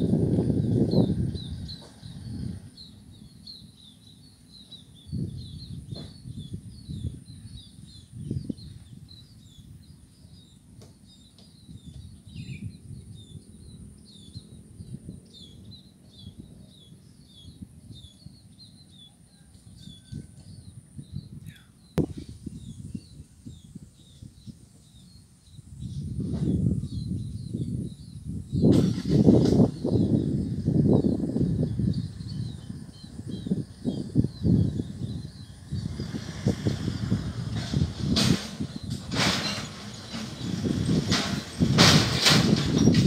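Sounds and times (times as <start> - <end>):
small birds chirping: 0.6 - 28.7, 29.7 - 37.6
low rumbling noise: 21.0 - 43.0.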